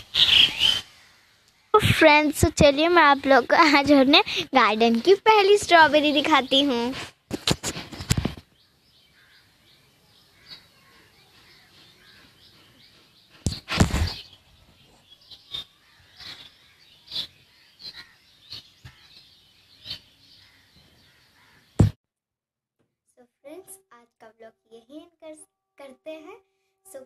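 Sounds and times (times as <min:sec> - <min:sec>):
small birds chirping: 0:00.0 - 0:07.0, 0:07.8 - 0:22.0.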